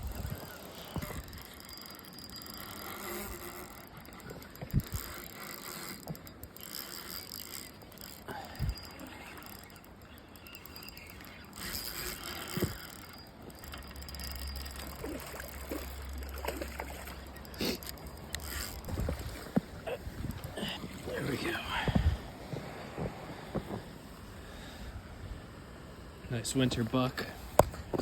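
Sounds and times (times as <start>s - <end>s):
fishing reel ticking and whirring: 0.0s - 22.3s.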